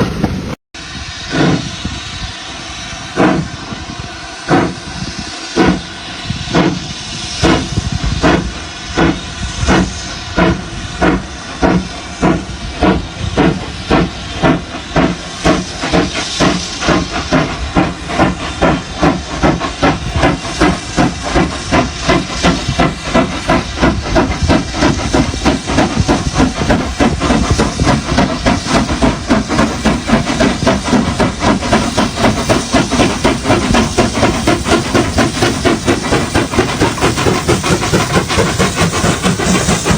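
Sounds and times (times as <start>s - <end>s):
steam locomotive chuffing: 0.0s - 39.9s.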